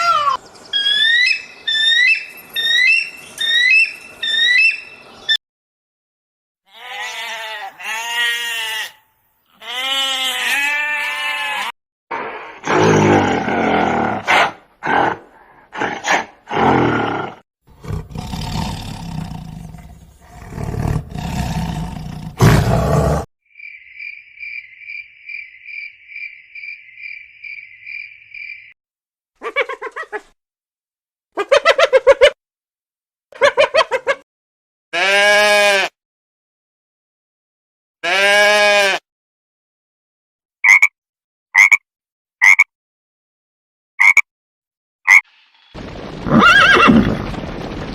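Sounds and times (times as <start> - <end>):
wavering pitched animal calls: 0.0 - 4.9
high-pitched pulsing animal call: 0.0 - 5.0
loud rough animal calls: 45.8 - 47.9.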